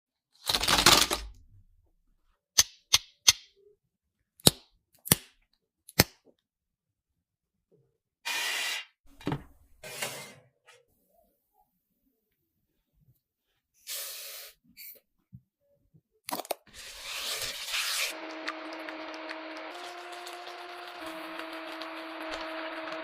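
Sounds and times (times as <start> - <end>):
wrapper rustling: 0.4 - 1.3.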